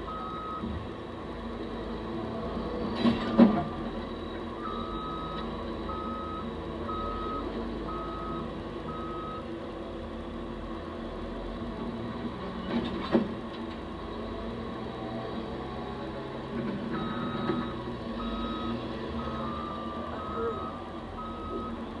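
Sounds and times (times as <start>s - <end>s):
diesel engines running: 0.0s - 22.0s
backup alarm beeping: 4.6s - 9.4s, 17.0s - 21.8s.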